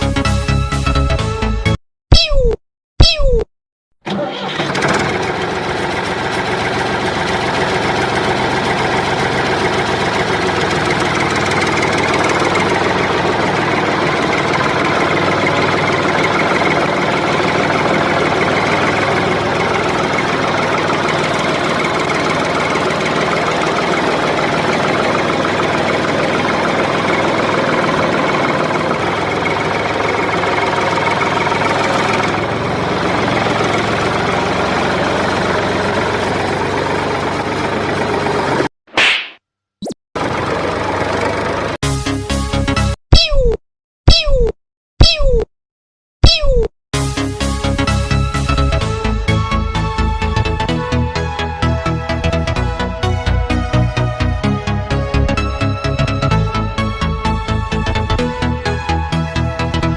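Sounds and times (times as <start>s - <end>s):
engine idling: 4.1s - 38.7s, 40.2s - 41.8s, 47.4s - 59.9s.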